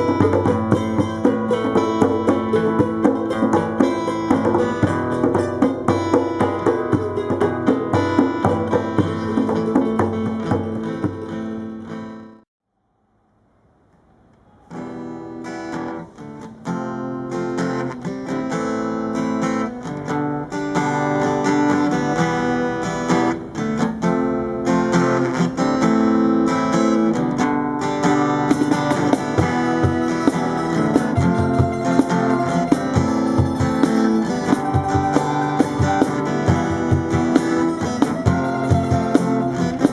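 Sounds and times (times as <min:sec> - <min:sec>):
percussion strokes: 0:00.0 - 0:12.2, 0:28.1 - 0:39.9
strummed acoustic guitar: 0:00.0 - 0:12.4, 0:14.6 - 0:39.9.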